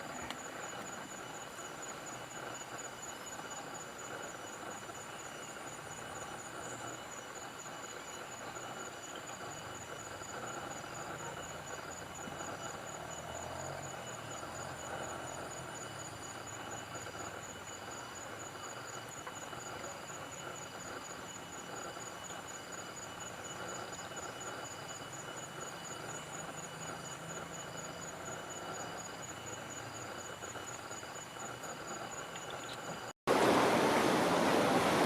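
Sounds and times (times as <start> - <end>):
insects trilling: 0.0 - 35.0.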